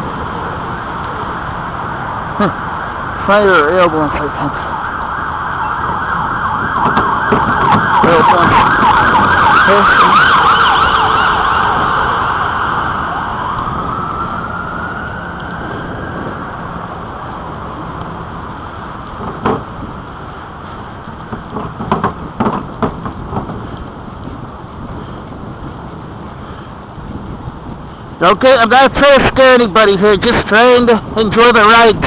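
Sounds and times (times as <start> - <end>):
emergency vehicle siren: 0.0 - 22.2
wind noise on microphone: 5.6 - 32.0
short knocks: 21.3 - 23.7.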